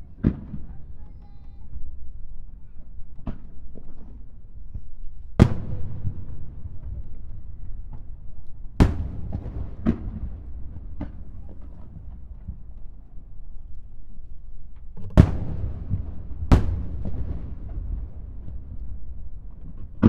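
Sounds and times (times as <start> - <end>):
firework shells booming: 0.0 - 1.2, 5.3 - 20.0
low rumble of echoes: 0.0 - 20.0.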